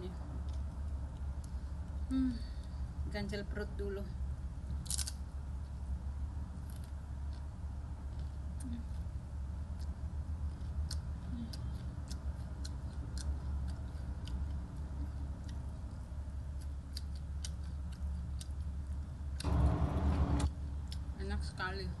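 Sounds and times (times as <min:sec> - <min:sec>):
person chewing crunchy food: 0:06.6 - 0:19.5
low hum: 0:13.3 - 0:22.0.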